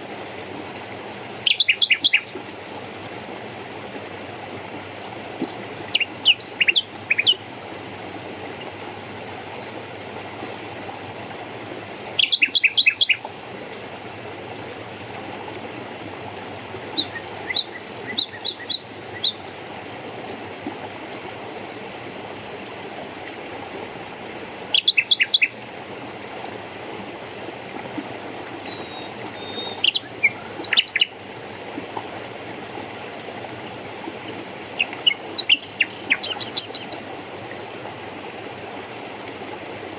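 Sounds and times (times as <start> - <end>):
stream rushing: 0.0 - 39.9
songbird singing: 0.1 - 2.4, 5.4 - 7.5, 9.6 - 13.3, 16.9 - 19.4, 22.6 - 25.6, 28.6 - 31.2, 34.4 - 37.1.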